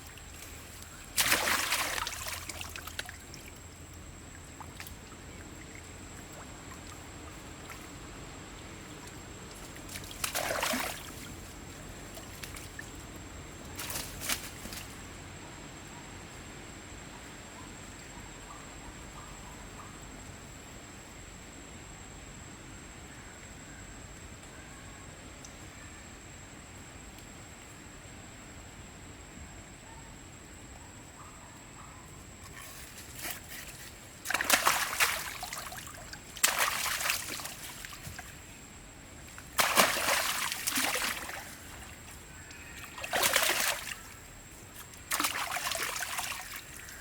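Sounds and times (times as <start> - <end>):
water splashing and sloshing: 0.0 - 15.0, 32.4 - 47.0.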